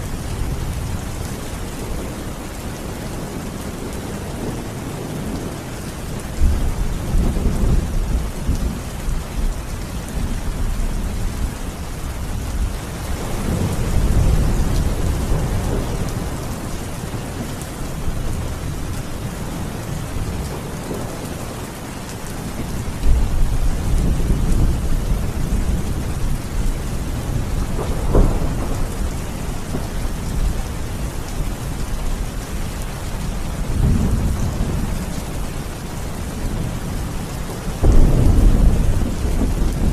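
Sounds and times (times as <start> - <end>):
steady rain: 0.0 - 39.9
thunder rumbling: 13.1 - 32.5, 33.1 - 39.9.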